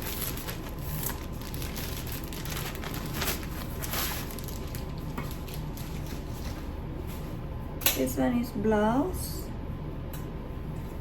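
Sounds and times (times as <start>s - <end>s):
packaging and clothing rustling: 0.0s - 6.7s.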